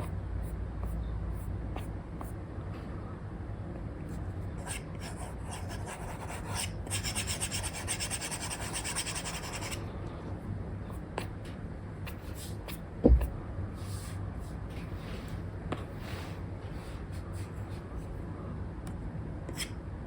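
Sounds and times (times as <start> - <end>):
stylus scratching on screen: 4.6 - 9.8.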